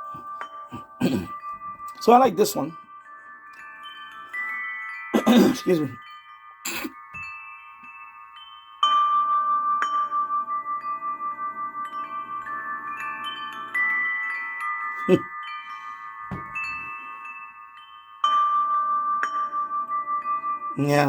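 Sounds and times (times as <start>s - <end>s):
wind chimes through radio speaker: 0.0s - 9.2s, 10.8s - 18.4s, 19.2s - 21.0s
low thump: 16.3s - 16.6s.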